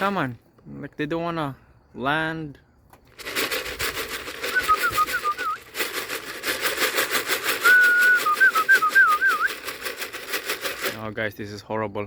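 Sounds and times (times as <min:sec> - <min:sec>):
fast steady rattle: 0:03.1 - 0:11.2
person whistling: 0:04.4 - 0:05.7, 0:07.5 - 0:09.7.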